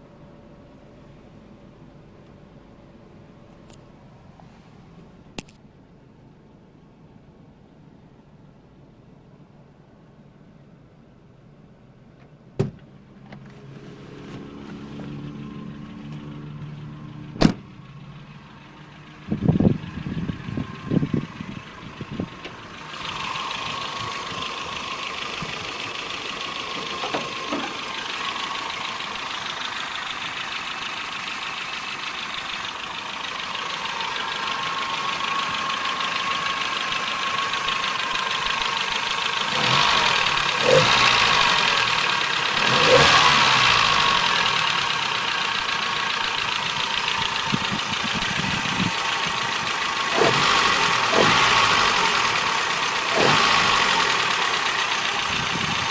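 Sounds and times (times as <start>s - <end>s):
car engine running: 12.8s - 55.9s.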